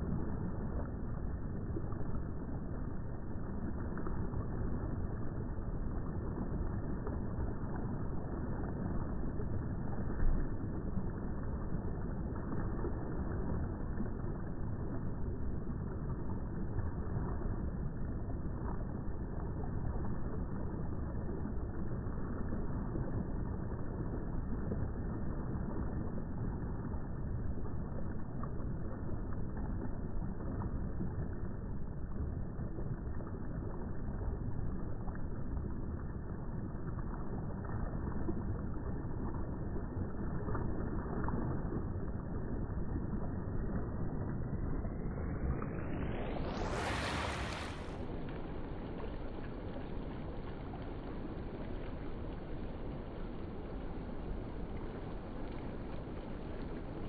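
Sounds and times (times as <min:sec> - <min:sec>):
water rushing: 0:40.2 - 0:57.0.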